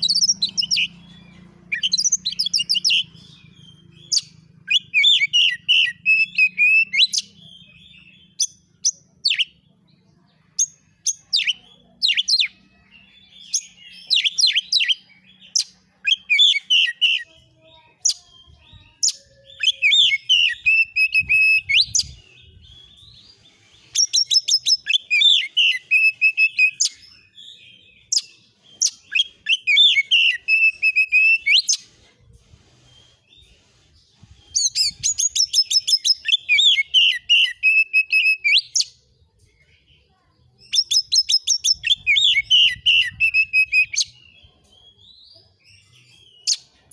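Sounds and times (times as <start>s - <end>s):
bird singing chattering notes: 0.0s - 9.7s.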